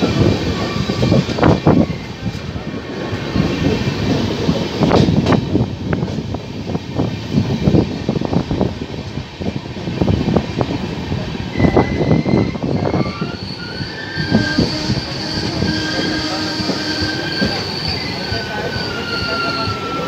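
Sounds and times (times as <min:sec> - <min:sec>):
train wheels clattering on rails: 0:00.0 - 0:20.0
high wheel squeal: 0:11.5 - 0:20.0.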